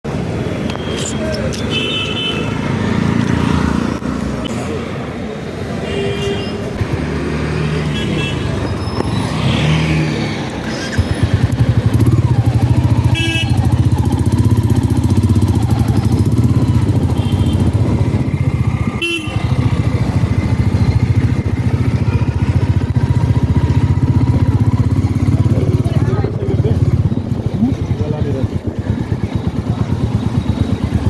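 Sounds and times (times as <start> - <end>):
motorcycle engine running: 9.0 - 31.0
vehicle horn toots: 13.0 - 13.8, 16.9 - 17.9, 18.9 - 19.8.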